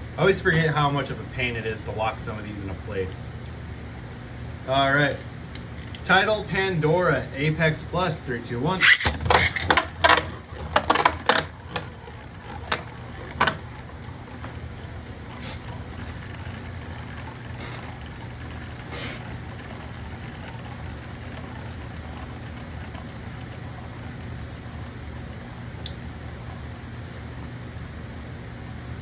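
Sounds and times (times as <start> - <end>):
spinning top whirring: 4.8 - 29.0
spinning top clattering: 7.8 - 29.0
launcher ratcheting: 8.8 - 27.4.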